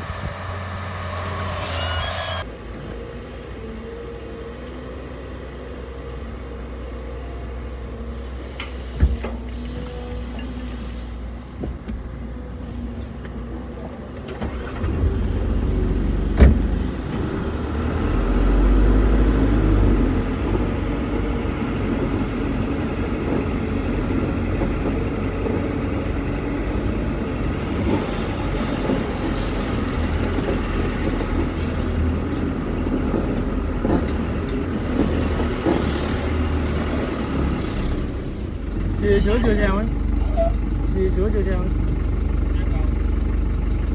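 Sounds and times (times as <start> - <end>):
dump truck engine running: 2.4 - 43.9.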